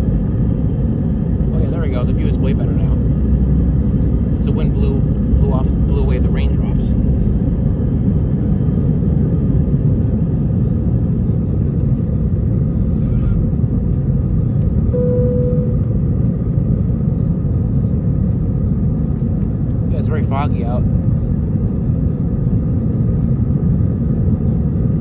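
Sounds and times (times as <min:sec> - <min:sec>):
jet engines at climb thrust: 0:00.0 - 0:25.0
brief steady tone: 0:14.9 - 0:15.9.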